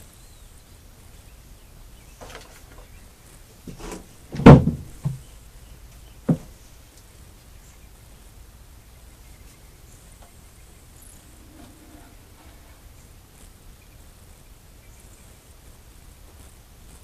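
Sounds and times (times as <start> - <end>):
engine parts knocking on workbench: 3.7 - 5.2, 6.3 - 6.5
engine parts scraping: 11.0 - 13.0.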